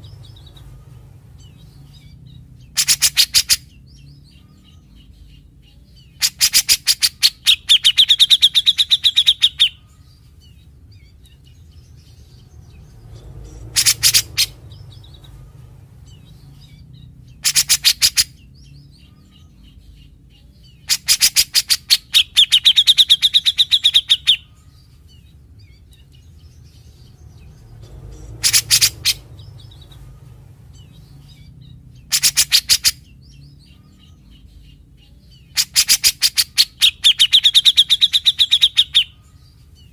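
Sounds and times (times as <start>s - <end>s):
steady low hum: 0.0s - 37.4s
bird giving harsh rasping calls: 2.6s - 3.8s, 6.2s - 9.8s, 13.4s - 15.2s, 17.3s - 18.5s, 20.8s - 24.5s, 27.9s - 30.0s, 32.0s - 33.2s, 35.5s - 39.2s.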